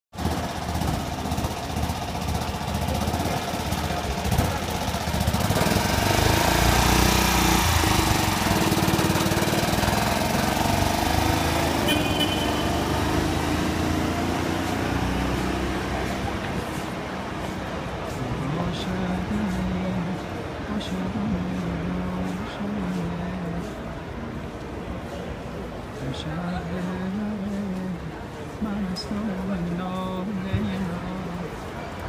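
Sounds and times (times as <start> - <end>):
small car engine running: 0.2 - 17.6.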